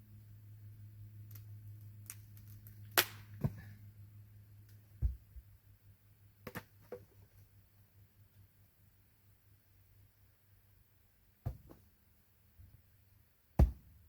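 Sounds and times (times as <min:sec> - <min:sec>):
low steady hum: 0:00.0 - 0:14.0
dull thud: 0:11.4 - 0:11.8, 0:13.6 - 0:13.9.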